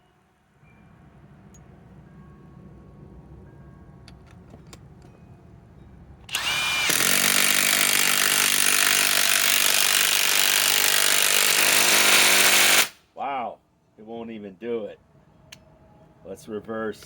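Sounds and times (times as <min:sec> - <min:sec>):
impact wrench hammering: 0:06.3 - 0:12.9.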